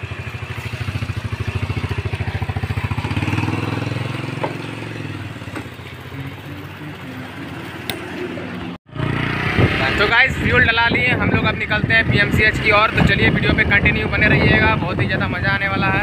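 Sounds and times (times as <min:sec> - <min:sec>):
motorcycle engine idling: 0:00.0 - 0:09.2.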